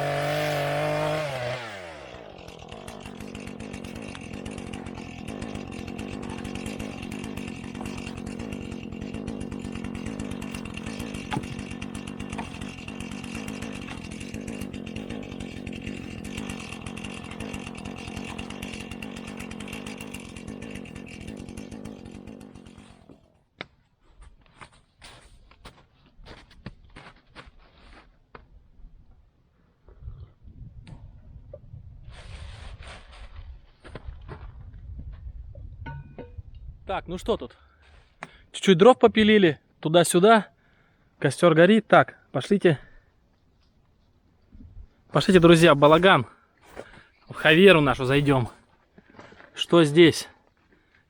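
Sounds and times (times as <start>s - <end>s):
chainsaw sawing firewood: 0.0s - 26.4s, 32.1s - 34.6s, 42.1s - 43.2s, 44.9s - 51.0s.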